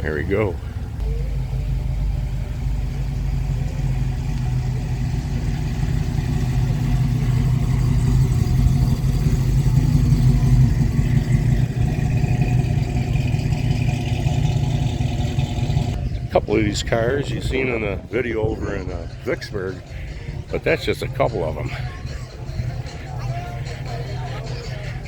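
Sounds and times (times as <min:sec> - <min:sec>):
car engine rumbling: 0:00.0 - 0:25.0.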